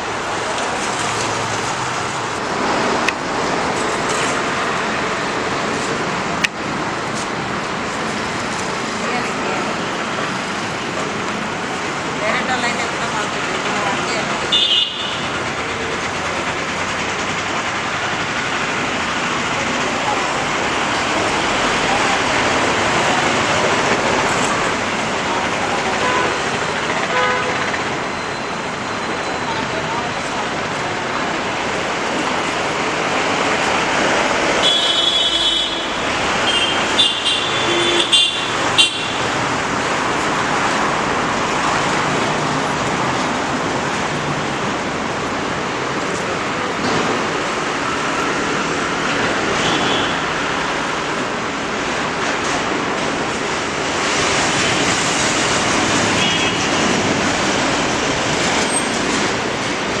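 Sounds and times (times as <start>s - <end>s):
road traffic noise: 0.0s - 60.0s
vehicle horns honking: 14.5s - 15.4s, 26.0s - 27.8s, 34.6s - 39.4s, 49.6s - 50.4s, 56.1s - 56.9s.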